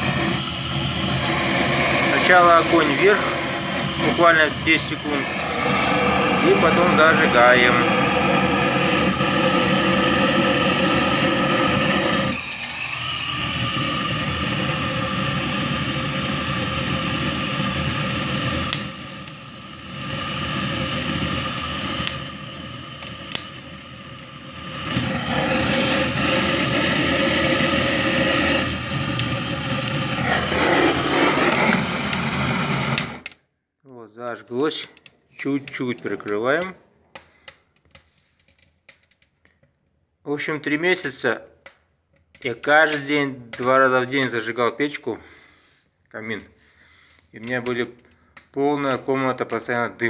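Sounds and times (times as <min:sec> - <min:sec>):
gas burner flame roaring: 0:00.0 - 0:33.4, 0:34.7 - 0:36.8, 0:42.4 - 0:44.5.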